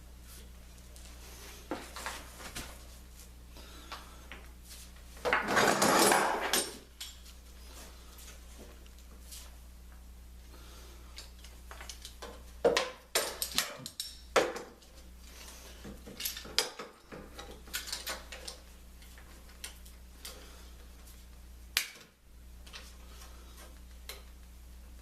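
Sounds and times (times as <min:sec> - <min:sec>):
steady low hum: 0:00.0 - 0:25.0
objects knocking and clattering: 0:05.2 - 0:07.2, 0:11.7 - 0:14.8.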